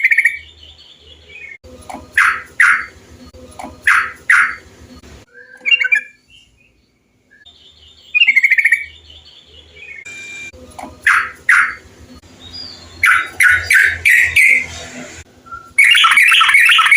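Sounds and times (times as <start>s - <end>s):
bird rapid trill: 0.0s - 3.0s, 3.8s - 4.7s, 7.4s - 11.8s, 12.4s - 14.8s, 15.6s - 16.9s
bulbul calls: 2.1s - 2.9s, 3.8s - 4.6s, 7.4s - 9.0s, 11.0s - 11.8s, 12.9s - 14.6s, 15.8s - 16.9s
bird chatter: 7.4s - 10.1s, 11.0s - 14.8s, 15.8s - 16.9s.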